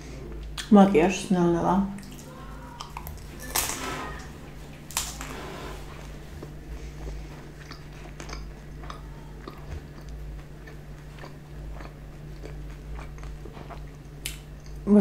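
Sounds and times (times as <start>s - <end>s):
chewing with mouth closed: 2.0s - 14.9s
wet mouth clicks and smacks: 14.2s - 14.8s.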